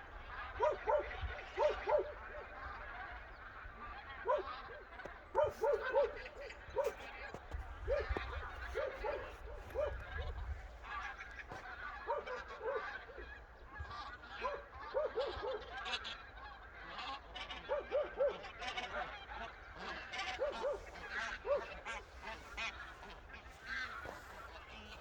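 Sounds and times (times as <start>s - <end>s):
geese honking: 0.0s - 25.0s.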